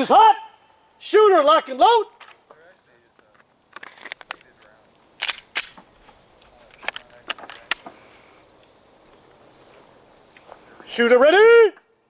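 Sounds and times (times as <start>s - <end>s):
crickets chirping: 0.0s - 12.0s
handgun loading clicks: 3.7s - 4.5s, 5.2s - 6.0s, 6.8s - 7.8s.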